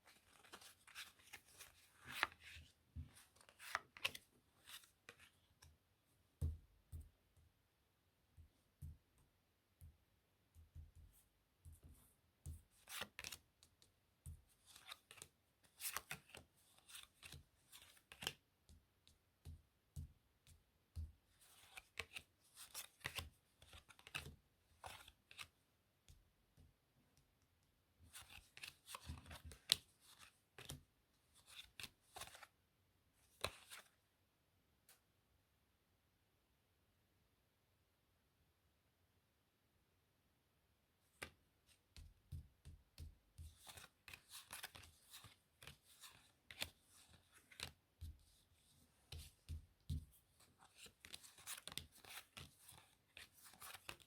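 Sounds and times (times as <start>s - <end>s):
playing cards snapping and rustling: 0.2s - 5.3s, 14.6s - 18.4s, 21.4s - 25.5s, 28.1s - 30.8s, 43.0s - 47.8s, 49.1s - 54.0s.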